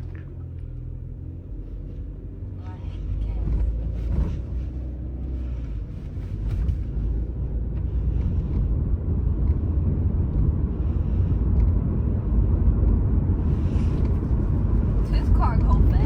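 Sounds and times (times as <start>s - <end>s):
car engine rumble: 0.0s - 16.0s.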